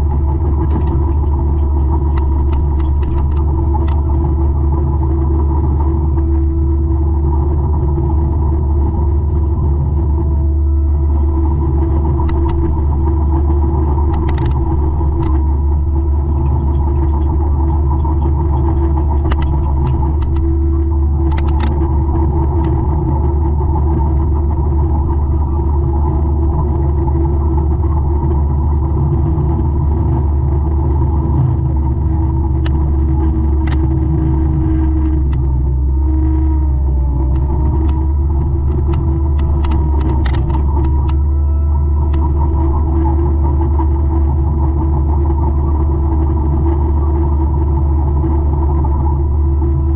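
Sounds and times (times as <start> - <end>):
diesel engine droning: 0.0 - 49.9
sharp clicks and ticks: 0.1 - 4.5, 13.4 - 22.8, 32.1 - 35.6, 37.3 - 41.3.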